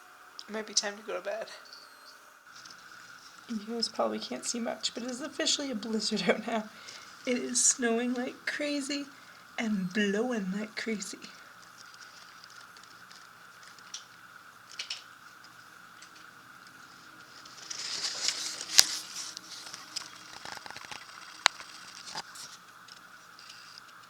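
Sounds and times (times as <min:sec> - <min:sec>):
blizzard wind hiss: 0:00.0 - 0:23.4
sharp ticks and clicks: 0:11.6 - 0:16.8, 0:19.7 - 0:22.2.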